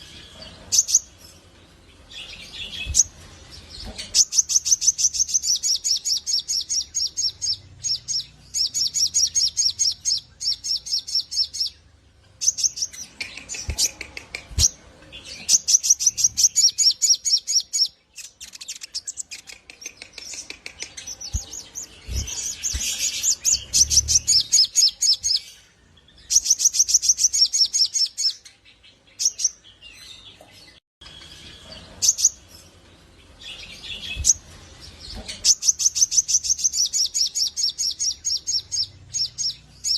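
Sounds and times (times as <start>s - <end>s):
bird chirping rapidly: 2.2s - 14.8s, 15.4s - 25.6s, 26.2s - 28.4s, 35.1s - 39.9s.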